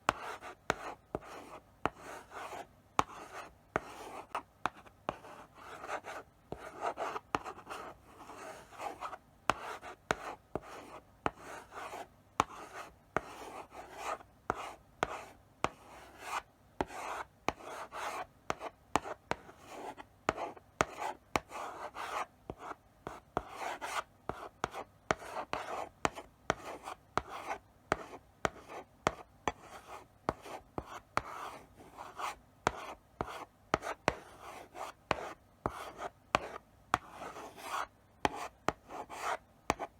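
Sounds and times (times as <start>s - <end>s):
chalk tapping on board: 20.3s - 22.7s, 23.4s - 31.5s, 32.1s - 39.9s
chalk scratching on blackboard: 23.4s - 39.9s.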